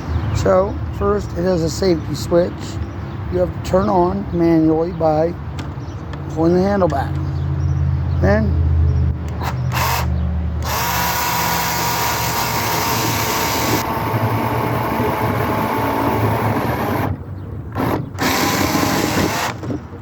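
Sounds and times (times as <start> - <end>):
electric chainsaw cutting log: 9.4 - 19.8.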